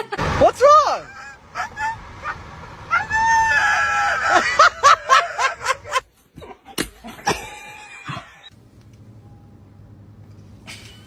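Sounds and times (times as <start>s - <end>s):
person laughing loudly: 4.0s - 6.0s.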